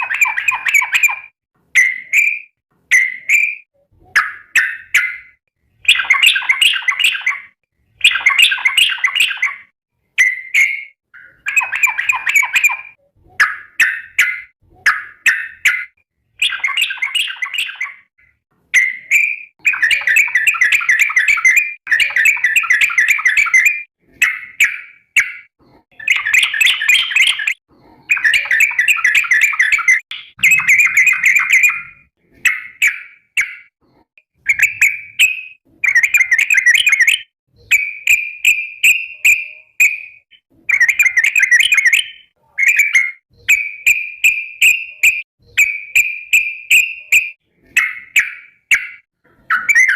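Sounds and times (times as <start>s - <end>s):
bulbul bubbly chattering song: 25.9s - 33.5s.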